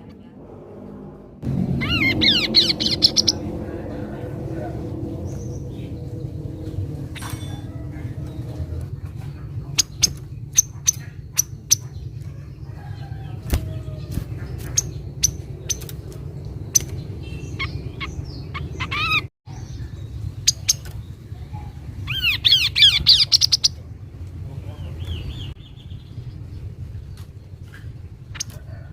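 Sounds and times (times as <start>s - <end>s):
low hum: 0.0s - 22.0s
bird chip notes: 1.4s - 8.8s.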